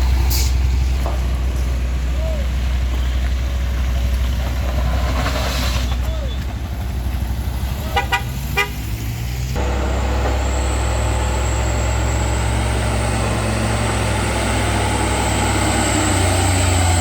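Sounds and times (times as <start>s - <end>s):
vehicle engine running: 0.0s - 17.0s
vehicle horn toots: 7.8s - 8.8s.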